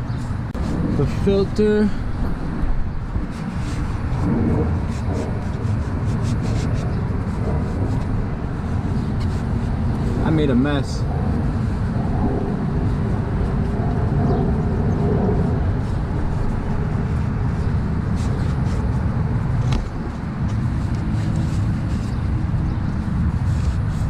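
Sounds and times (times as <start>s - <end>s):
low rumbling background noise: 0.0s - 24.0s.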